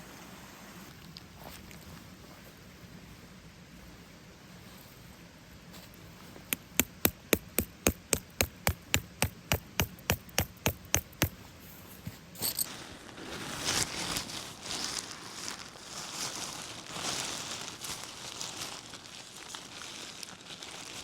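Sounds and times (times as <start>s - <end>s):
rustling and crackling: 5.7s - 21.0s
rapid knocking: 6.5s - 11.3s.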